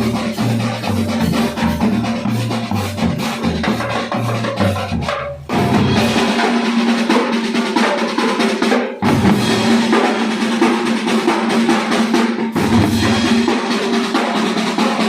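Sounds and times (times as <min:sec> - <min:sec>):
bass drum beats: 0:00.0 - 0:06.7
snare drum strokes and rolls: 0:00.0 - 0:15.0.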